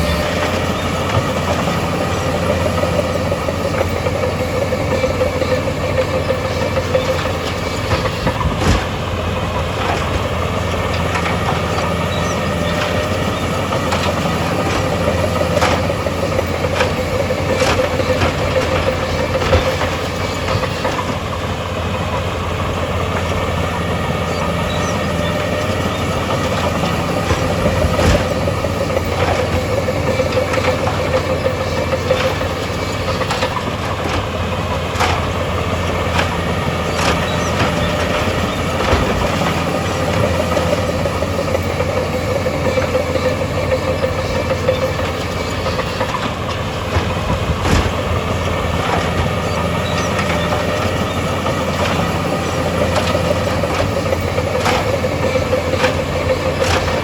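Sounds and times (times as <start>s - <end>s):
heavy diesel machinery running: 0.0s - 57.0s
metallic clanks and knocks: 24.3s - 57.0s.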